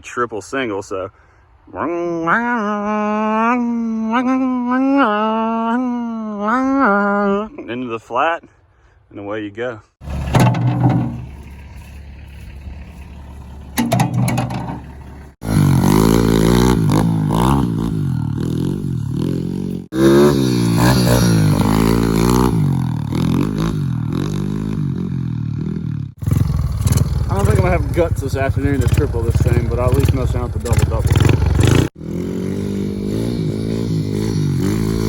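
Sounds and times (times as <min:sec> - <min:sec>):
motorbike engine revving: 0:10.0 - 0:35.0.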